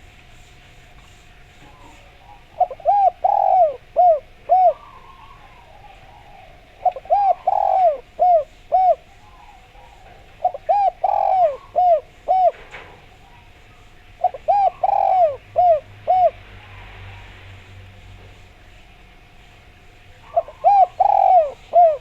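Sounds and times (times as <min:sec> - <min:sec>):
dove cooing: 0:01.0 - 0:17.2, 0:20.1 - 0:22.0.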